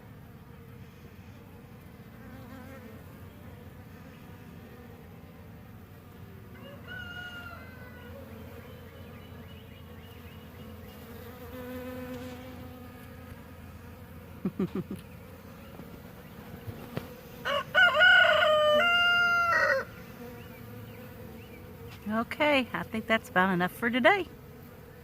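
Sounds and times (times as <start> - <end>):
honey bees buzzing: 0.0 - 25.0
rooster crowing: 6.5 - 8.4, 17.4 - 20.0.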